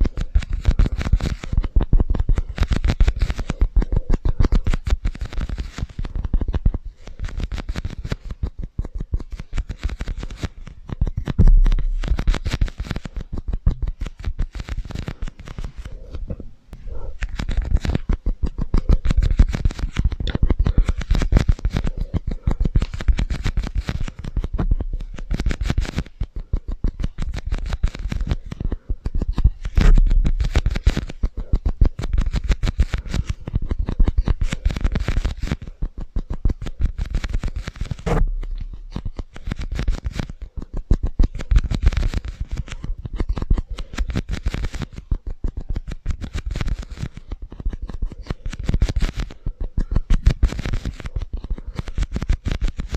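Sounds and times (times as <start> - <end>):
rapid tapping and scratching: 0.0 - 52.9
dull low thumps: 11.4 - 12.2, 38.1 - 38.9.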